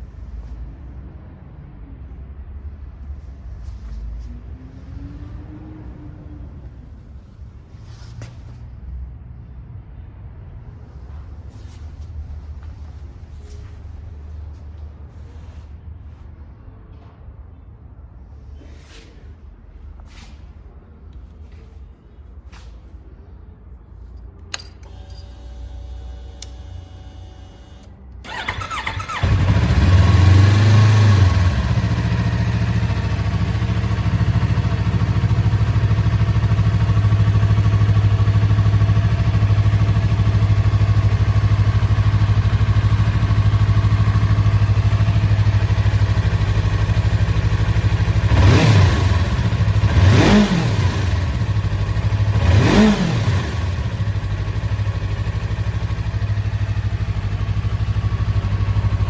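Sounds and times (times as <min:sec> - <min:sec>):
engine revving: 0:28.3 - 0:32.3, 0:48.2 - 0:54.2
motorcycle engine idling: 0:28.3 - 0:50.0, 0:50.8 - 0:59.0.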